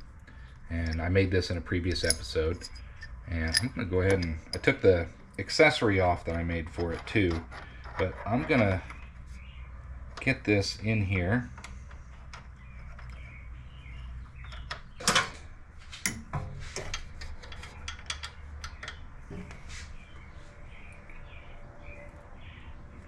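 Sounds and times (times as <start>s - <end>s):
steady low hum: 0.0s - 23.0s
metal clicks and knocks: 1.9s - 4.9s, 6.2s - 9.1s, 11.5s - 13.4s, 14.3s - 19.6s.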